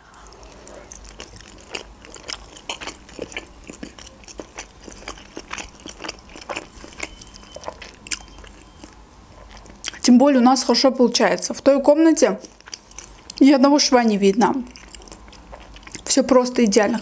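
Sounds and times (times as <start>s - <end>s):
person chewing food: 0.0s - 10.0s, 12.4s - 13.4s, 14.6s - 16.1s.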